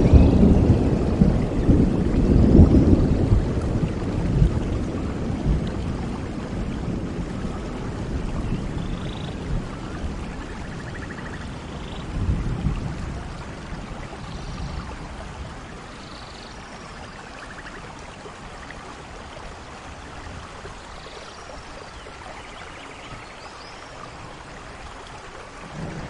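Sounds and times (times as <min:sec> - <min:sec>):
thunder rumble: 0:00.0 - 0:15.9, 0:25.6 - 0:26.0
rain falling through forest: 0:00.0 - 0:26.0.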